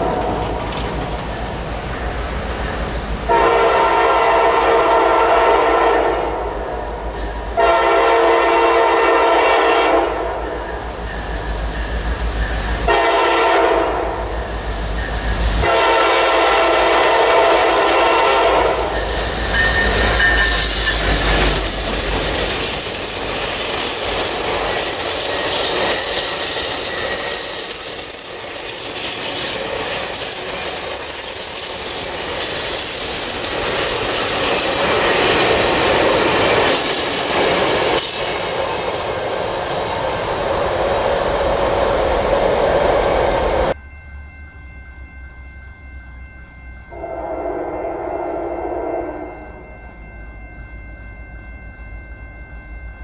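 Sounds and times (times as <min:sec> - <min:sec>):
train wheels on rails: 0:00.0 - 0:53.0
train horn: 0:03.3 - 0:10.7, 0:12.8 - 0:14.3, 0:15.6 - 0:21.8, 0:46.9 - 0:49.8
high wheel squeal: 0:10.1 - 0:12.9, 0:13.8 - 0:15.7, 0:16.8 - 0:43.8.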